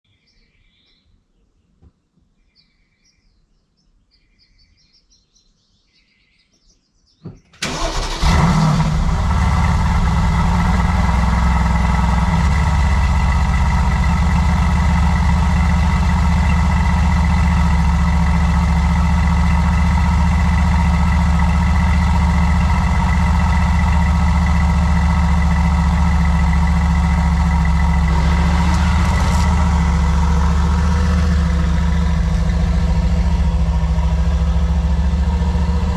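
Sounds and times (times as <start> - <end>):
faint bird chirps: 0.1 - 7.6
car engine cranking and idling: 7.6 - 35.9.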